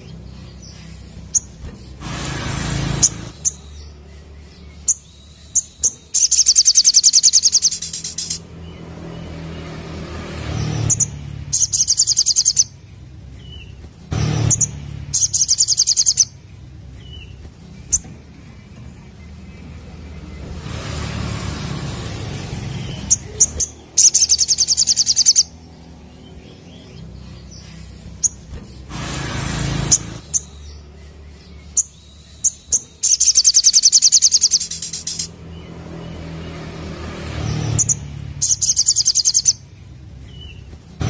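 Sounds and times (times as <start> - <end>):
bird high-pitched trills: 2.8 - 8.5, 10.8 - 12.8, 14.4 - 16.4, 22.8 - 25.6, 29.8 - 35.4, 37.7 - 39.6.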